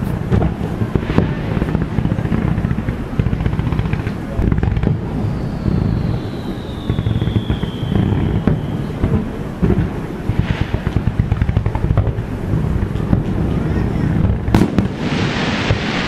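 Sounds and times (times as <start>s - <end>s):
firework crackle: 0.0s - 16.0s
fireworks booming: 0.0s - 16.0s
falling firework whistle: 4.4s - 11.6s, 13.1s - 16.0s.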